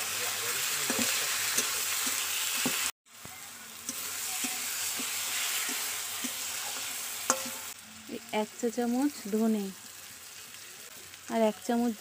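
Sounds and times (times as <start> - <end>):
food sizzling in a pan: 0.0 - 12.0
spatula scraping metal pan: 3.9 - 7.8.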